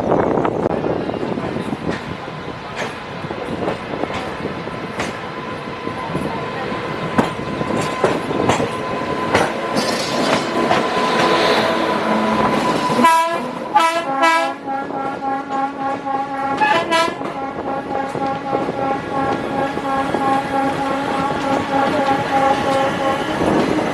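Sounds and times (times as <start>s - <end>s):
train horn blasts: 10.7s - 23.5s.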